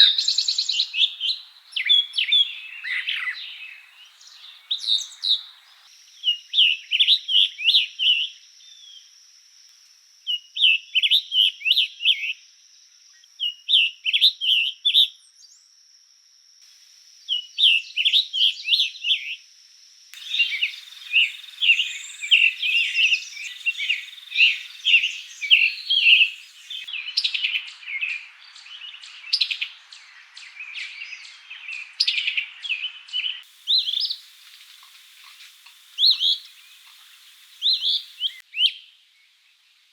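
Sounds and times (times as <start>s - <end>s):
songbird song phrases: 0.0s - 9.5s, 10.2s - 15.9s, 17.2s - 19.5s, 20.2s - 39.9s
bird chirps and trills: 20.2s - 27.4s, 33.6s - 38.4s.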